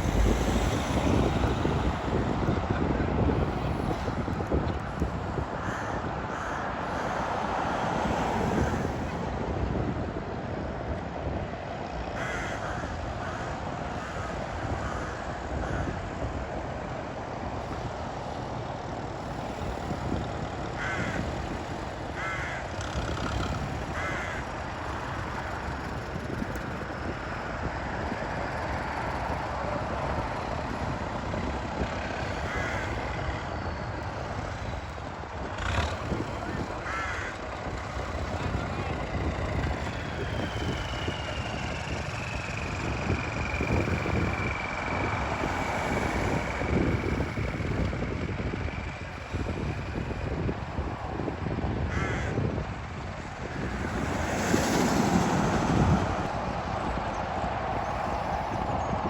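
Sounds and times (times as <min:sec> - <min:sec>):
tractor engines running: 0:00.0 - 0:59.0
crows cawing: 0:05.6 - 0:08.9, 0:12.2 - 0:16.2, 0:20.7 - 0:25.9, 0:32.0 - 0:34.7, 0:35.6 - 0:41.9, 0:51.9 - 0:52.6.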